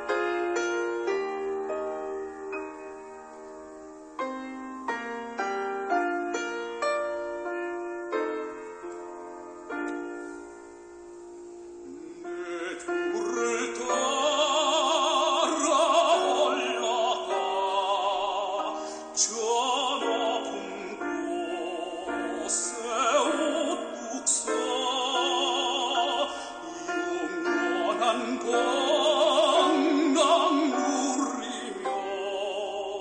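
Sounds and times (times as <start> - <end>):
operatic singing: 11.8 - 33.0.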